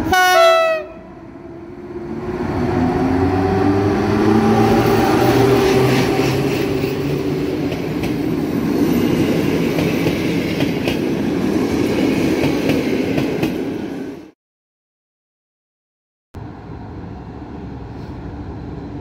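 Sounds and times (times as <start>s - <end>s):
train wheels rushing on rail: 1.8s - 14.3s.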